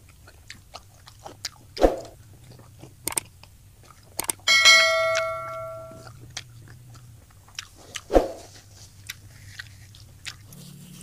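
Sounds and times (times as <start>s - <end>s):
chewing with wet mouth sounds: 0.0s - 4.5s, 5.9s - 11.0s
small clicks while eating: 0.0s - 4.5s, 5.9s - 11.0s
crunchy bite: 0.2s - 4.4s.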